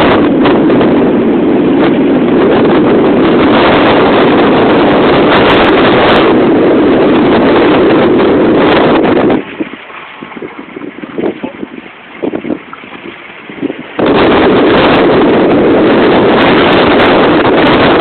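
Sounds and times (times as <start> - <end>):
strong wind on microphone: 0.0 - 18.0.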